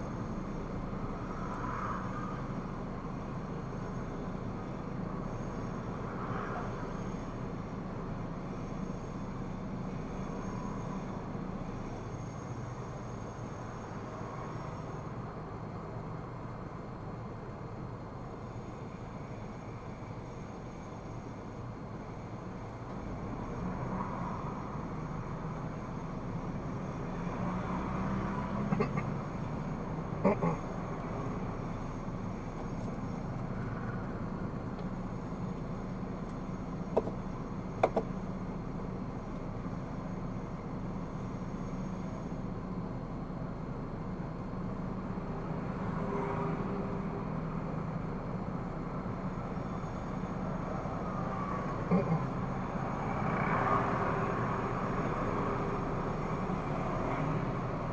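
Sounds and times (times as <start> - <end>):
road noise: 0.0 - 57.9
car engine: 21.8 - 57.9.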